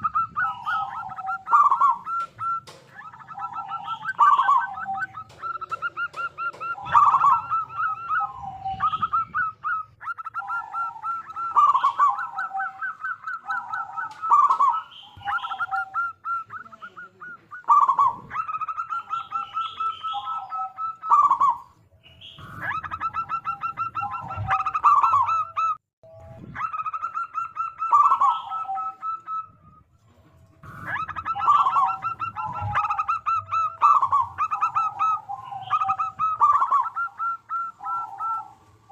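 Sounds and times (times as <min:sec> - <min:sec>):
dove singing and cooing: 0:00.0 - 0:38.9.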